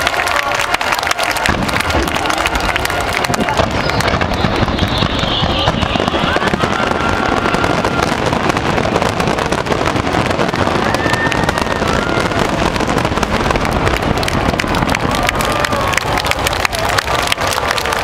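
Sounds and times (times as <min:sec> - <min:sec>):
fireworks crackling and popping: 0:00.0 - 0:18.0
firework whistles: 0:03.6 - 0:09.5.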